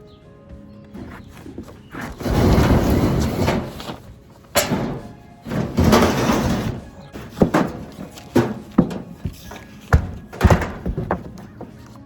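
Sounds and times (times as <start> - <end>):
scraping rustling noise: 0.9 - 12.0
sharp knocks and bangs: 2.2 - 11.8.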